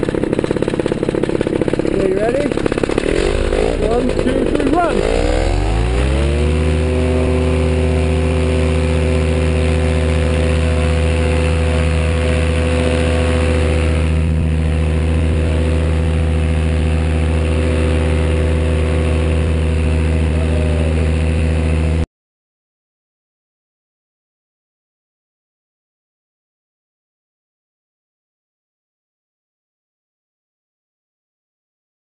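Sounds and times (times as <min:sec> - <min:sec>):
paramotor engine at full power: 0:00.0 - 0:22.1.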